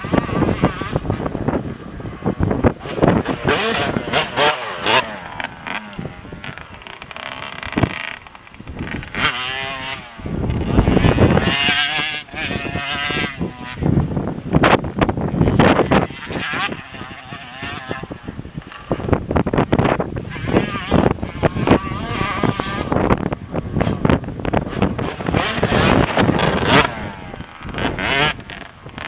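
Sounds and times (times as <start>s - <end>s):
motocross bike engine revving: 0.0s - 29.0s.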